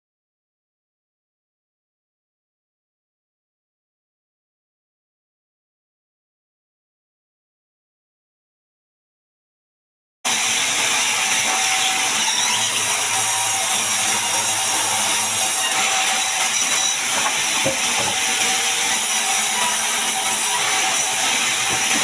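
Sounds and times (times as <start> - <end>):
band saw cutting log: 10.3 - 22.0.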